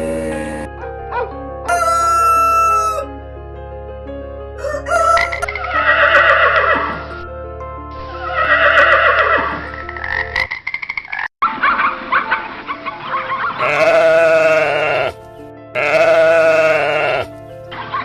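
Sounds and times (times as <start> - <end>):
background music: 0.0 - 10.5, 11.4 - 18.0
rooster crowing: 1.7 - 3.1, 4.6 - 6.3.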